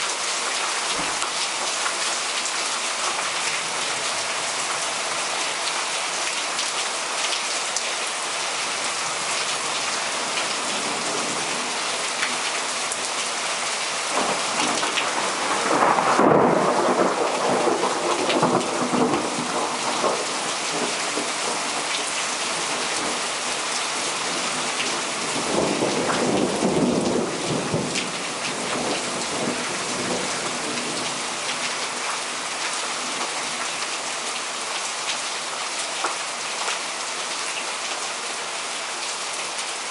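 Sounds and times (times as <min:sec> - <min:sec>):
heavy downpour hissing: 0:00.0 - 0:39.9
thunder rumbling: 0:14.1 - 0:21.9.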